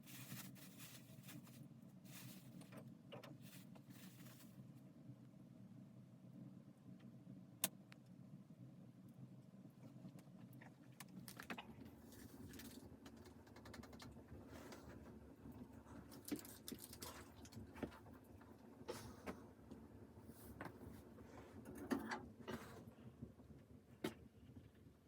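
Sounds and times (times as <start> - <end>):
light clicks and rustles of handling: 0.0 - 4.9, 9.4 - 19.8
low steady hum: 0.0 - 25.0.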